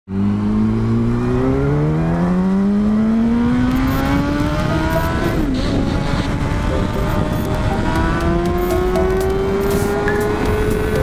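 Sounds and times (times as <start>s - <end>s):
motorcycle engine accelerating: 0.1s - 11.0s
wind and road rush: 0.1s - 11.0s.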